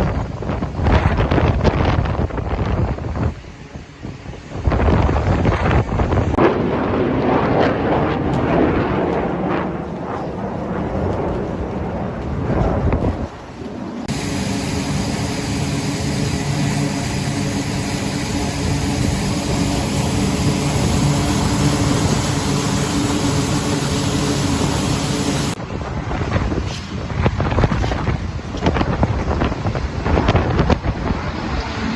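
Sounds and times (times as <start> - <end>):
jet engine rumble and hum: 0.0 - 31.9
wind buffeting microphone: 0.0 - 31.9.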